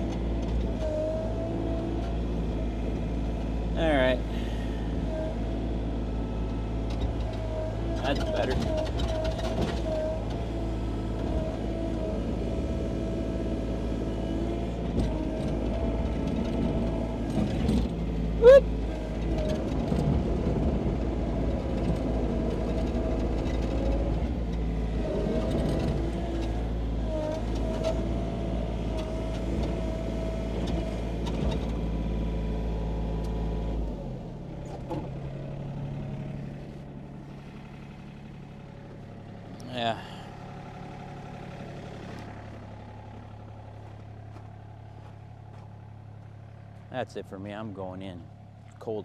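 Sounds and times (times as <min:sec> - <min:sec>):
mini excavator engine running: 0:00.0 - 0:49.0.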